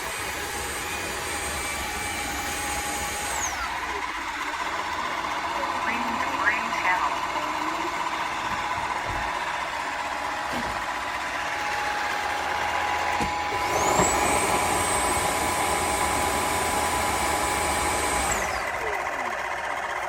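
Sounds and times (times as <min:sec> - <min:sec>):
vacuum motor hum and whine: 0:00.0 - 0:20.0.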